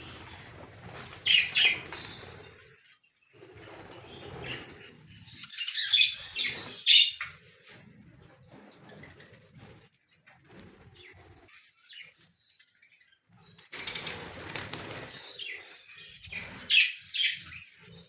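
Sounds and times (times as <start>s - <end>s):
wings fluttering: 0.0s - 2.8s, 3.4s - 11.6s, 13.5s - 18.0s
budgerigars chirping: 1.2s - 2.3s.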